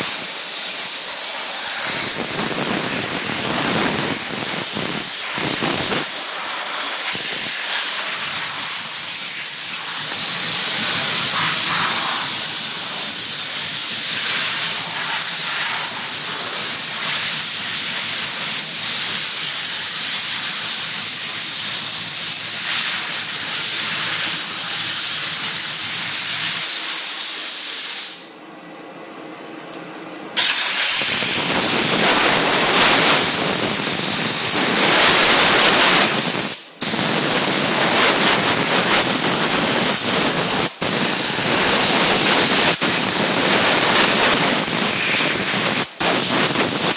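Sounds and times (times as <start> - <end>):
steam cleaner hissing: 0.0 - 28.3, 30.4 - 46.9.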